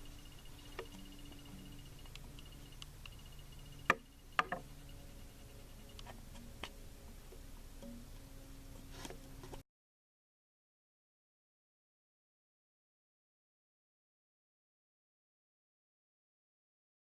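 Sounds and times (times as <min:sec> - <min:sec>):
faint rapid high-pitched ticking: 0:00.0 - 0:06.8
low steady hum: 0:00.0 - 0:09.6.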